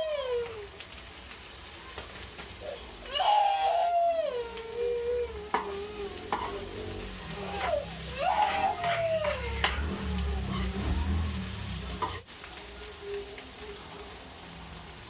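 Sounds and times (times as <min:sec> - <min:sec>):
food sizzling in a frying pan: 0:00.0 - 0:15.0
utensil clicking against pan: 0:05.5 - 0:10.7
whining tone sliding down: 0:09.2 - 0:12.0.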